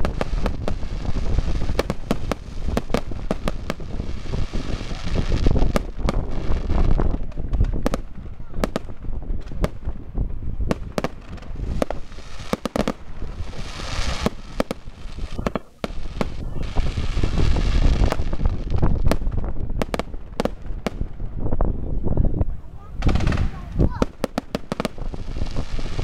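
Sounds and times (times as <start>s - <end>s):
hissing firework sparks: 0.0s - 21.2s, 23.0s - 26.0s
firework bangs: 0.0s - 21.5s, 22.9s - 26.0s.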